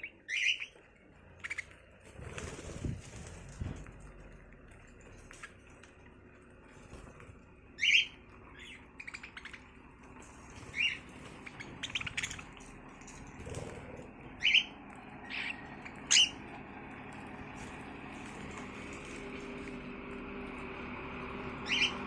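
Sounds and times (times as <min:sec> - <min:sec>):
birds chirping: 0:00.0 - 0:03.4, 0:04.6 - 0:22.0.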